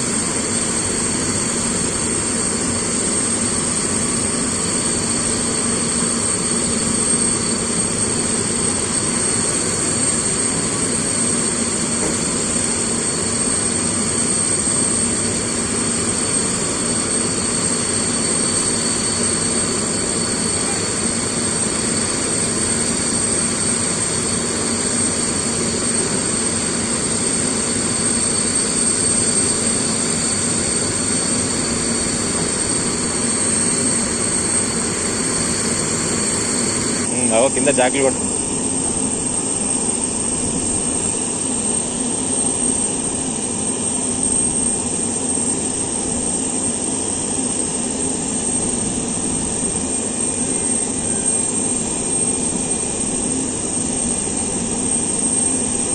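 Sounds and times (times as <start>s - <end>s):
turbine engine whine: 0.0s - 55.9s.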